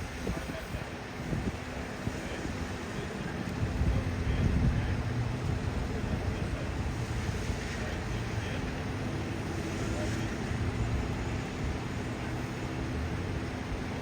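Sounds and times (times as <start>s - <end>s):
rumble of vehicles: 0.0s - 14.0s.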